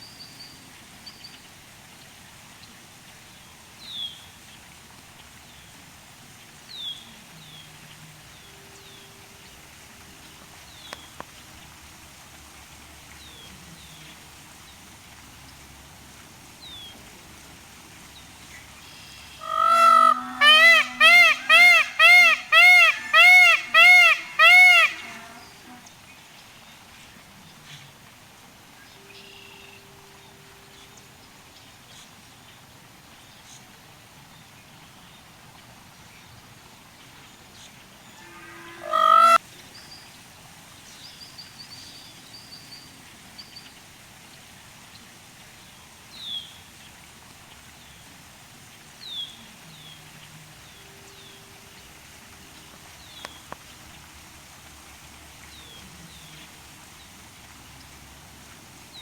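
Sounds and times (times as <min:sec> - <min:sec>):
peacock calling: 0:18.8 - 0:25.9, 0:38.1 - 0:39.4.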